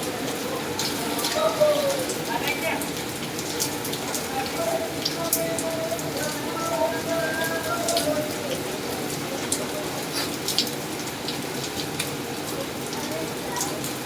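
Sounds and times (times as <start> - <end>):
rain falling steadily: 0.0 - 14.0
faint voice: 4.3 - 10.4, 12.5 - 14.0.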